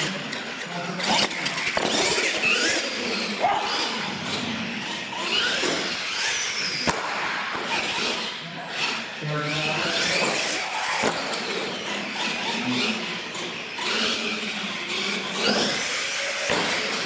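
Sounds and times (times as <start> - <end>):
electric motors whining: 0.0 - 17.0
toy truck hitting floor: 15.4 - 17.0.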